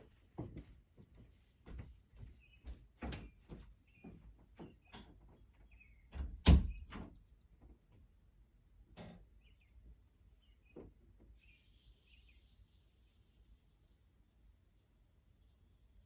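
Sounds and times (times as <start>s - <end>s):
faint bird chirps: 9.4s - 16.0s.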